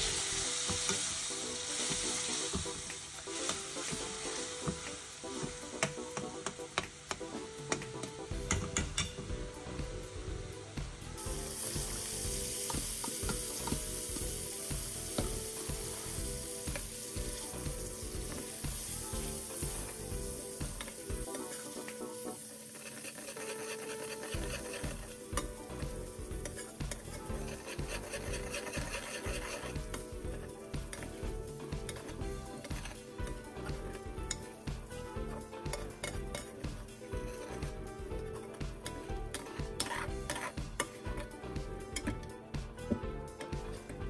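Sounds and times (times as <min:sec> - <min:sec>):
food sizzling in a pan: 0:00.0 - 0:44.0
metal spatula scraping a pan: 0:20.6 - 0:25.6, 0:26.3 - 0:34.6, 0:35.7 - 0:42.3.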